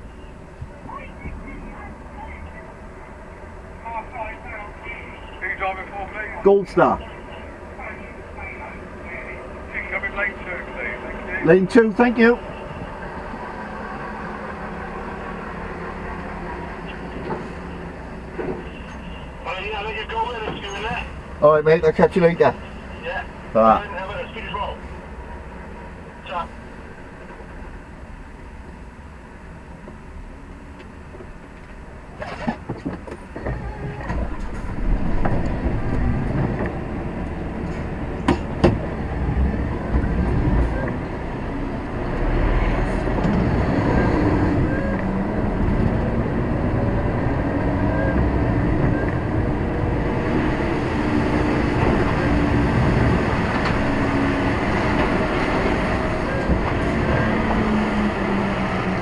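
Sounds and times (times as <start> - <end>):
lorry diesel engine: 0.0 - 59.0
sharp clunks and rattles: 32.2 - 36.9, 37.6 - 39.0.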